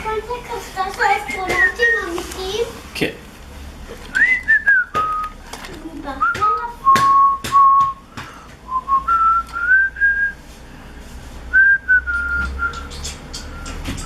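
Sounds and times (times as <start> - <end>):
person whistling a slow tune: 4.2 - 5.3, 6.3 - 8.0, 8.7 - 10.5, 11.5 - 12.9.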